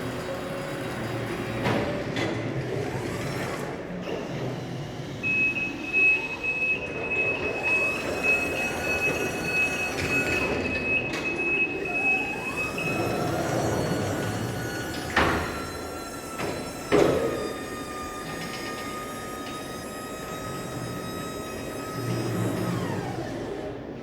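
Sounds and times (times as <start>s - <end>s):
electric truck motor whine: 2.5s - 24.0s.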